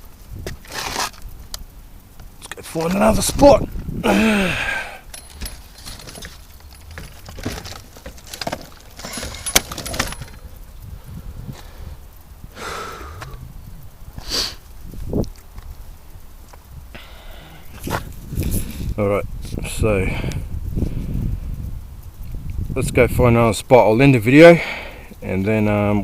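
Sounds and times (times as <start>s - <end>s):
handling clicks and knocks: 5.0s - 10.6s
short rustles: 5.0s - 10.6s.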